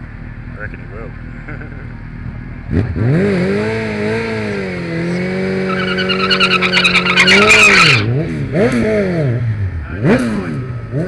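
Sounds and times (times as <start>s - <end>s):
motorcycle engine at high revs: 0.2s - 11.0s
tyre squealing: 5.6s - 8.1s.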